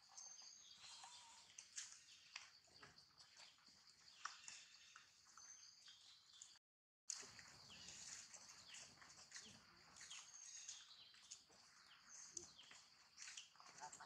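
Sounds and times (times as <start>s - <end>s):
faint bird chirps: 0.0s - 6.6s.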